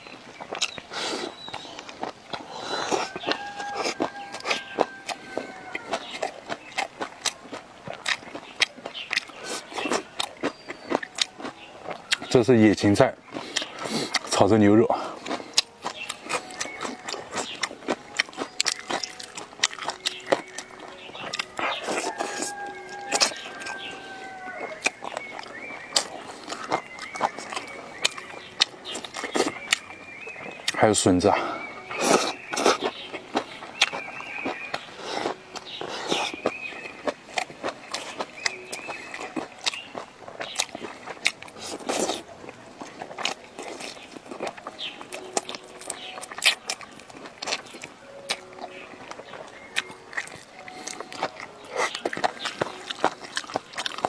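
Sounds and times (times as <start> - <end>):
chewing and crunching food: 0.0 - 54.0
wet smacking clicks: 0.4 - 54.0
animal long call: 21.5 - 24.9.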